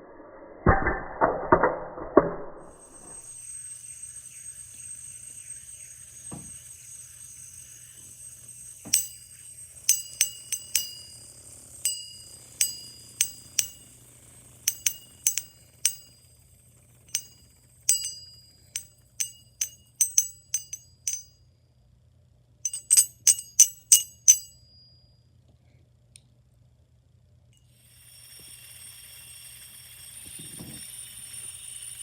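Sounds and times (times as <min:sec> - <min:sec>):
small hard toys clinking: 0:08.9 - 0:11.3, 0:11.9 - 0:14.0, 0:14.7 - 0:16.2, 0:17.1 - 0:21.3, 0:22.7 - 0:24.8.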